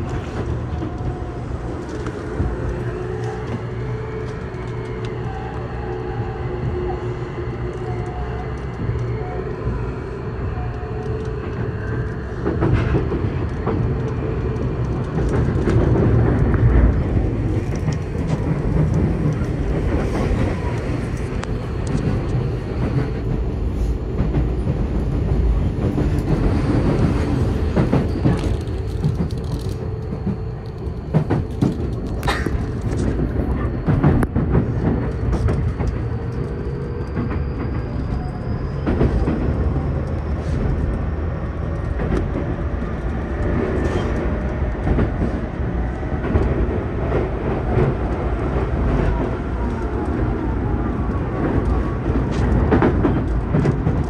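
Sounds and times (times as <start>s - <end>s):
wheel and rail rumble: 0.0s - 54.0s
clacks over rail joints: 11.2s - 54.0s.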